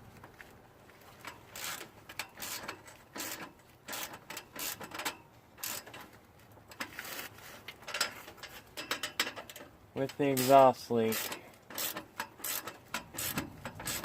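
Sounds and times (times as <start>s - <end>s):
hand ratchet clicking: 11.1s - 14.0s.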